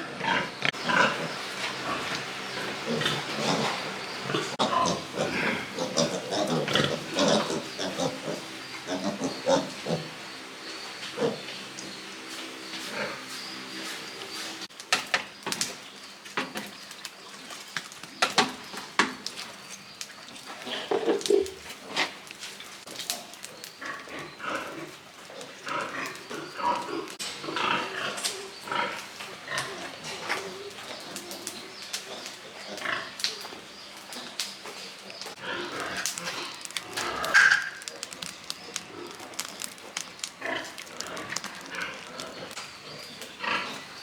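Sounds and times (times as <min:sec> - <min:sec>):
pigs grunting and squealing: 0:00.0 - 0:10.3, 0:11.1 - 0:11.7, 0:35.3 - 0:44.0.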